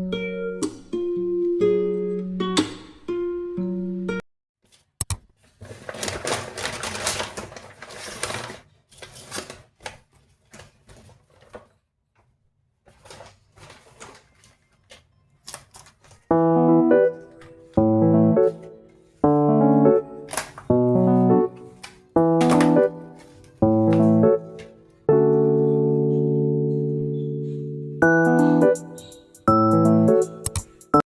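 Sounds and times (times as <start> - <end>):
piano music: 16.3 - 31.0.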